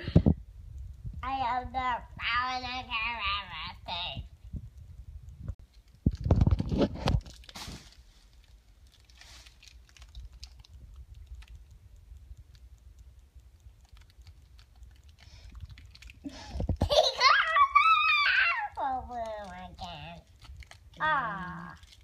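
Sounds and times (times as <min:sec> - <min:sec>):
packaging bumps and crackles: 0:05.6 - 0:11.7, 0:13.8 - 0:17.6, 0:19.1 - 0:22.0
packaging crinkling and clicking: 0:05.6 - 0:11.8, 0:13.6 - 0:16.8, 0:19.1 - 0:22.0.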